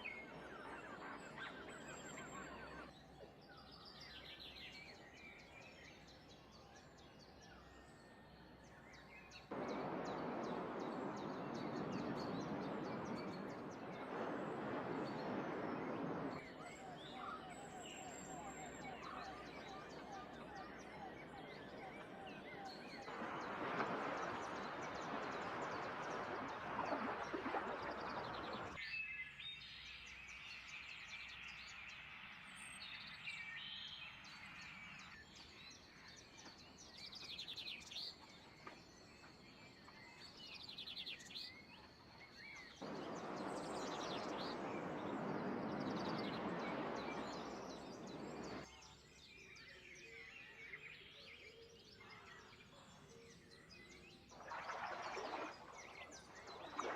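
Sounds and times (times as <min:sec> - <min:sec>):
songbirds chirping and singing: 0:00.0 - 0:31.5, 0:32.6 - 0:56.9.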